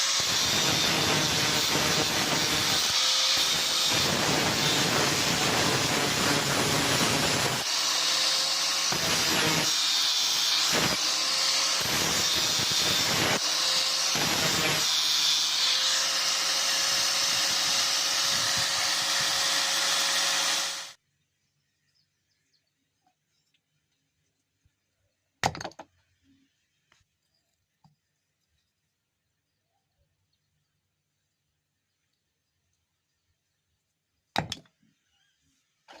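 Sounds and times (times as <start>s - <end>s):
electric power tool motor: 0.0s - 21.0s.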